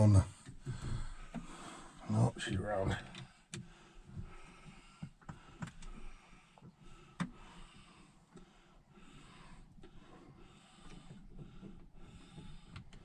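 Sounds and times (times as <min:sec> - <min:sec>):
small clicks and light knocks: 0:02.8 - 0:08.6, 0:10.8 - 0:13.0.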